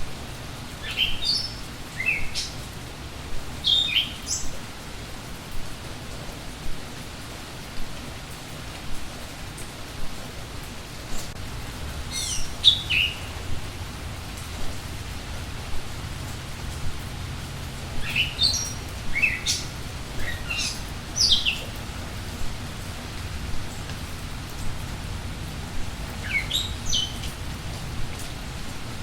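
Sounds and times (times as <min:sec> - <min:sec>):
steady rain: 0:00.0 - 0:29.0
bird chirping: 0:00.8 - 0:02.6, 0:03.6 - 0:04.5, 0:12.0 - 0:13.5, 0:18.0 - 0:21.8, 0:26.2 - 0:27.3.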